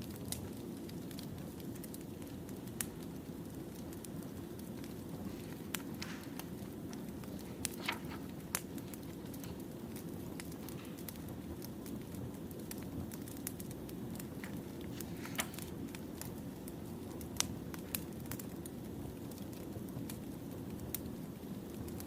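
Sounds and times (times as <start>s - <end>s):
firewood crackling and popping: 0.0s - 22.0s.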